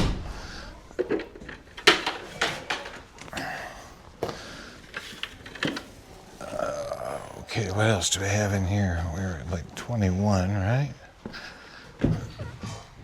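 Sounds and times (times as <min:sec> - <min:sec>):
wooden knocks and clunks: 0:12.0 - 0:12.7.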